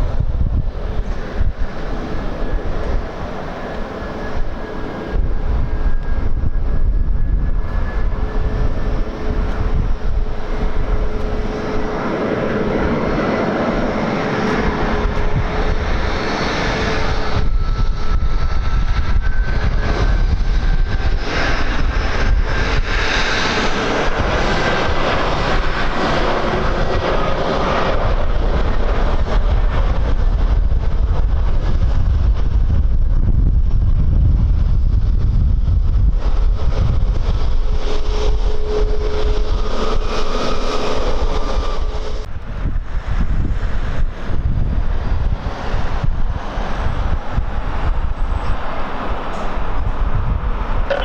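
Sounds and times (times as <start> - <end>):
jet engines whining: 0.0 - 33.2, 33.8 - 51.0
wind rumble on microphone: 0.0 - 51.0.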